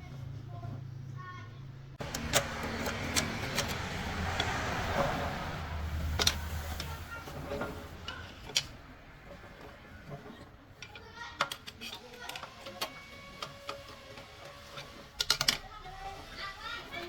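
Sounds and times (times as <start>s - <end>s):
metal tools clicking and knocking: 2.0s - 5.2s, 6.0s - 15.8s.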